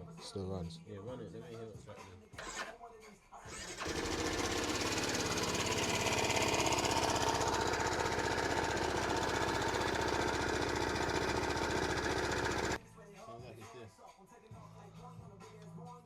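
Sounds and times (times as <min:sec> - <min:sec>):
engine rattle: 0:03.5 - 0:12.8
scooter engine idling: 0:03.5 - 0:12.8.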